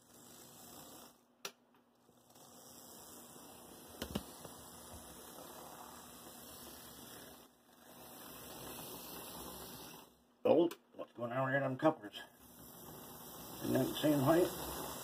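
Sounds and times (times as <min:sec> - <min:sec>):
model locomotive motors humming: 0:02.1 - 0:10.2, 0:12.4 - 0:15.0.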